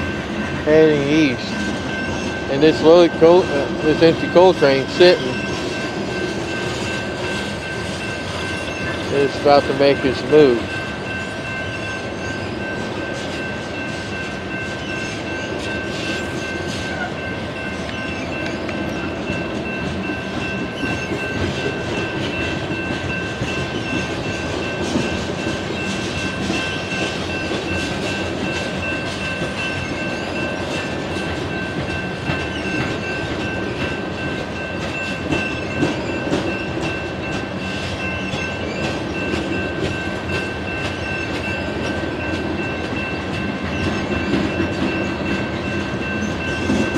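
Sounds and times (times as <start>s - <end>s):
high-pitched tone: 0.0s - 46.9s
train cars rolling past: 0.0s - 46.9s
wheels clickety-clack: 12.7s - 46.9s.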